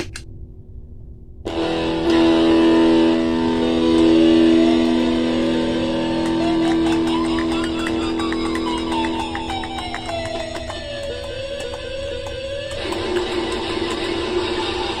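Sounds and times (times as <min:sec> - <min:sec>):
distorted guitar drone: 0:01.4 - 0:15.0.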